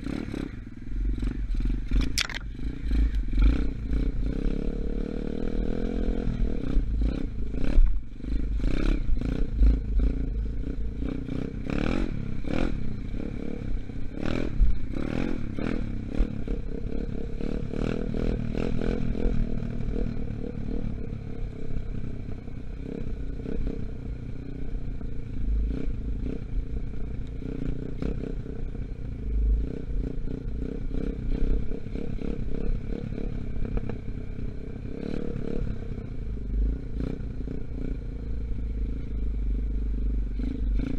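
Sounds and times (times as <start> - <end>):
dirt bike engine revving: 0.0 - 21.2.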